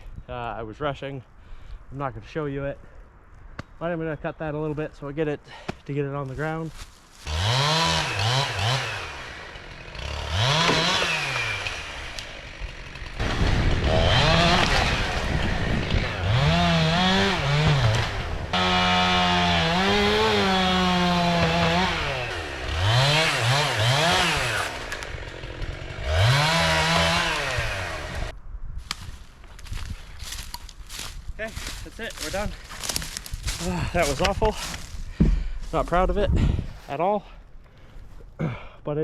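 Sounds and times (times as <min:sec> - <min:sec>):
chainsaw revving: 0:07.2 - 0:28.3.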